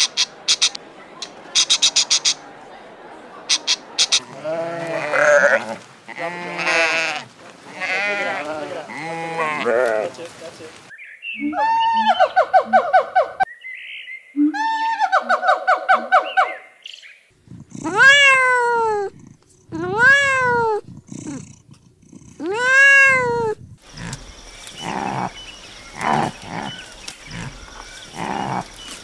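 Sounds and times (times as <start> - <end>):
short high repeated calls: 0.0 - 2.4
kitten meowing: 17.8 - 20.8, 22.4 - 23.6.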